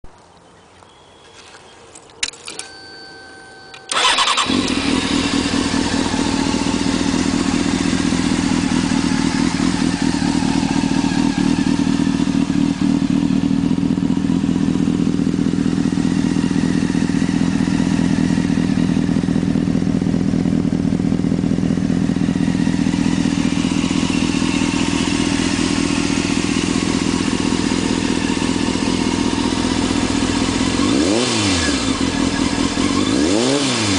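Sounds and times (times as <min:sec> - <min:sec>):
motorcycle engine starting and idling: 0:02.1 - 0:33.9.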